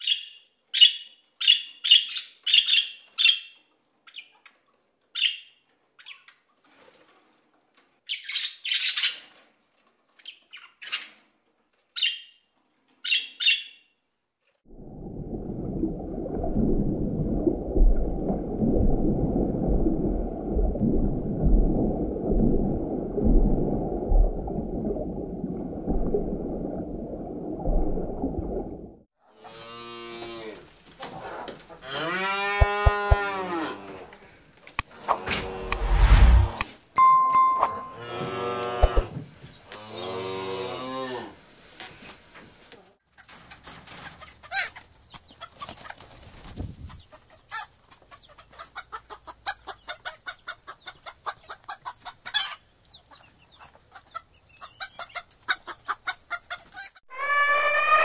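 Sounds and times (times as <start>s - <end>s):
cow mooing: 31.8s - 34.0s, 38.0s - 39.0s, 39.7s - 41.4s
steady low rushing noise: 35.6s - 36.6s.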